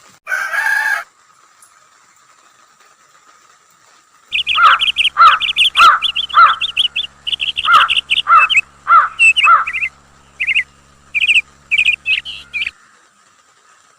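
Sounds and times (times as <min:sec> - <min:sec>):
birds chirping: 0:04.3 - 0:12.8
lower arched bird call: 0:04.3 - 0:12.8.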